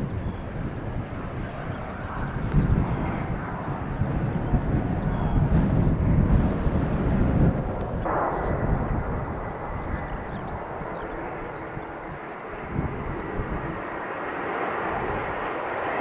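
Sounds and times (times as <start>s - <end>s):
jet airliner engine rumble: 0.0s - 16.0s.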